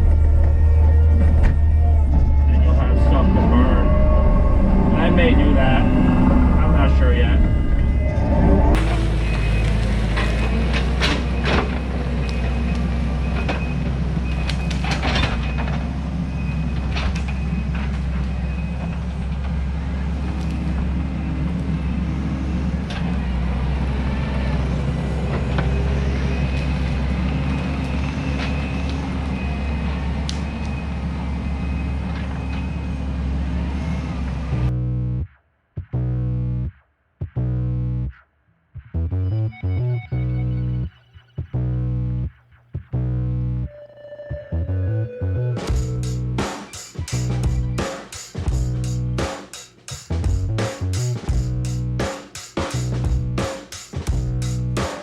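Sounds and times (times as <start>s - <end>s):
diesel engine running: 0.0s - 35.2s, 45.6s - 47.9s, 50.0s - 52.1s, 52.8s - 55.0s
faint high whine: 1.9s - 10.2s.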